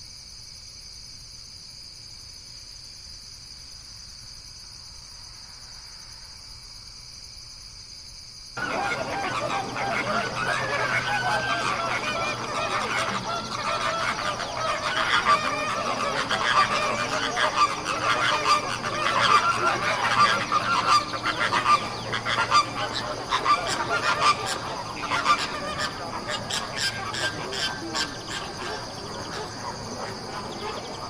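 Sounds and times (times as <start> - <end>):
flock of birds calling: 8.6 - 31.0.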